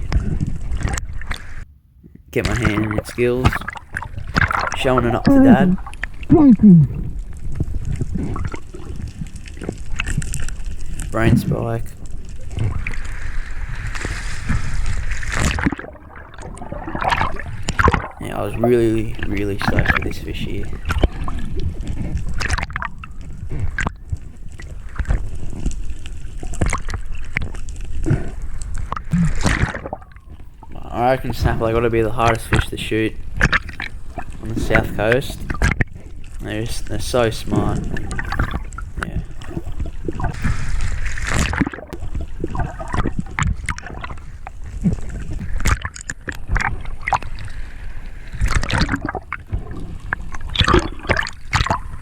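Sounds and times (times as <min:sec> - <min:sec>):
water sloshing and gurgling: 0:00.0 - 0:52.0
low rumble: 0:05.2 - 0:15.2.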